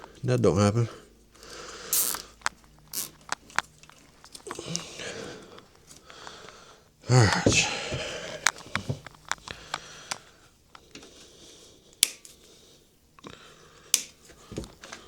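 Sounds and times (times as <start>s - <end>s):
loud snaps: 1.9s - 3.5s.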